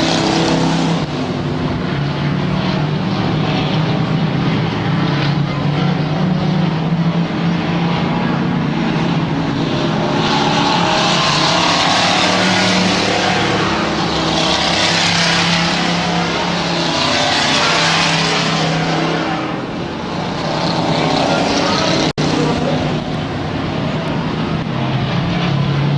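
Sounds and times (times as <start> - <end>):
race truck engines passing: 0.0 - 25.9.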